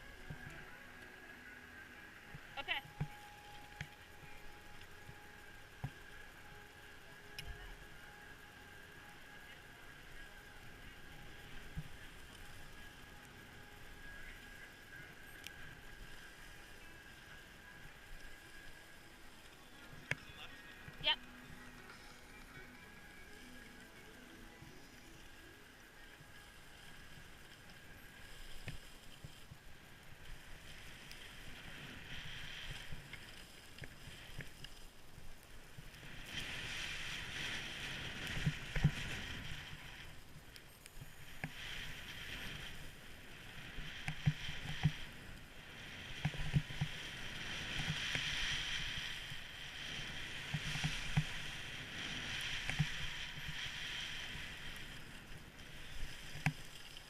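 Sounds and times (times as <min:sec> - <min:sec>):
skis scraping over snow: 0:22.9 - 0:57.0.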